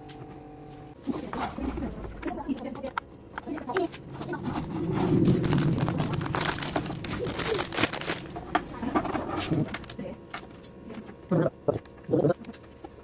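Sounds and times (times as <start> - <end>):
plastic pieces clattering: 4.6 - 10.0.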